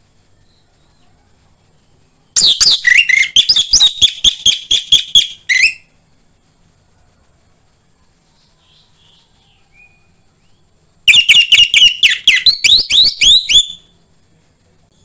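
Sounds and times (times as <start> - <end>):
thrush up-slurred chirps: 2.4 - 6.0.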